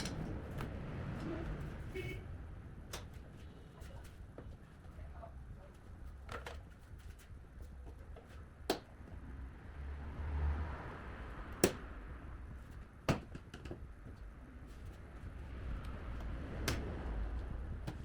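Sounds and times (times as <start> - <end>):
low steady rumble: 8.4 - 18.0.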